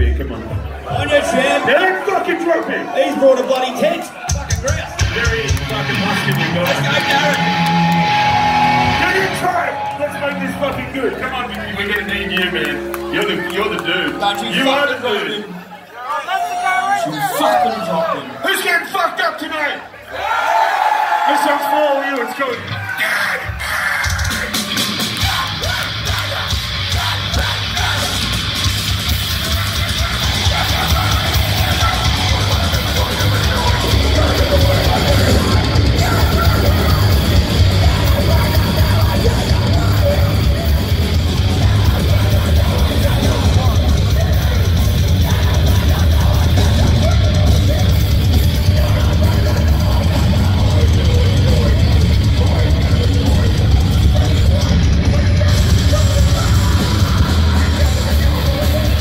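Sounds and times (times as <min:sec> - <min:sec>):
heavy metal band playing live: 0:04.3 - 0:14.4, 0:22.5 - 0:59.0.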